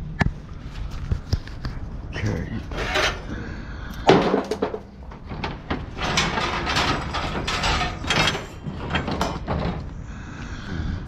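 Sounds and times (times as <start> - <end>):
scrap metal clattering: 2.7 - 3.4, 4.0 - 10.0.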